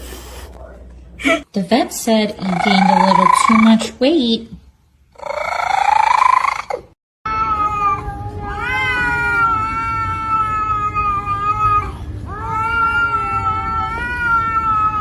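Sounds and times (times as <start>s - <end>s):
cat meowing and yowling: 2.5s - 3.7s, 5.2s - 15.0s.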